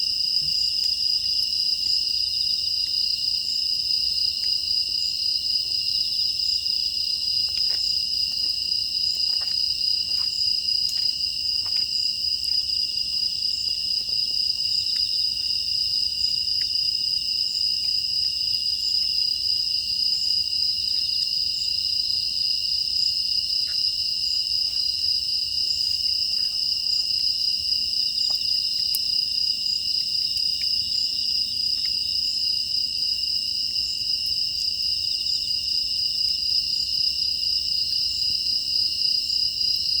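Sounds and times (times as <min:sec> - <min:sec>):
crickets trilling: 0:00.0 - 0:40.0
faint wood fire crackles: 0:06.6 - 0:32.4.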